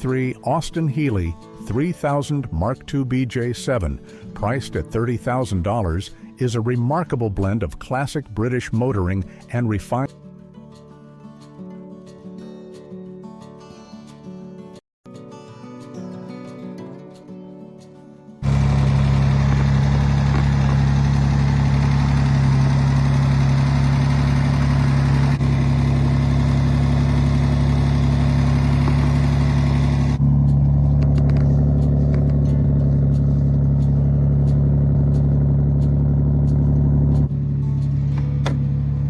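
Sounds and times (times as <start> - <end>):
car engine idling: 18.4 - 39.0.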